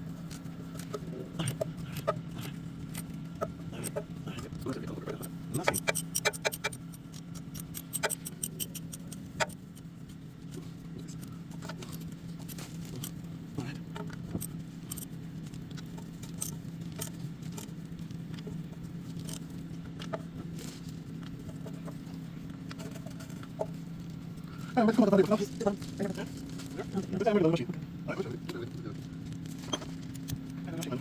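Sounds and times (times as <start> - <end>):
steady low hum: 0.0 - 31.0
hand tools clicking and tapping: 0.3 - 9.8, 14.0 - 15.1, 19.2 - 20.1.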